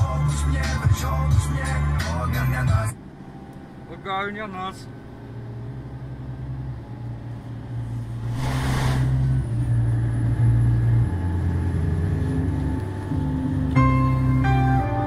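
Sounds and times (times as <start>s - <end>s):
truck diesel engine droning: 0.0s - 15.0s
air hiss: 8.1s - 9.4s.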